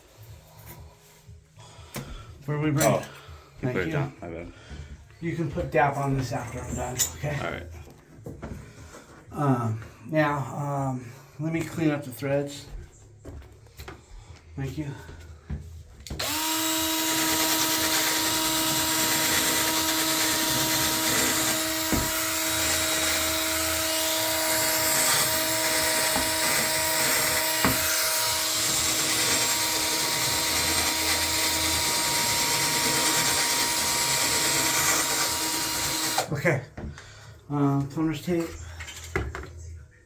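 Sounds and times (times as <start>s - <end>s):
power drill running: 16.2s - 36.3s.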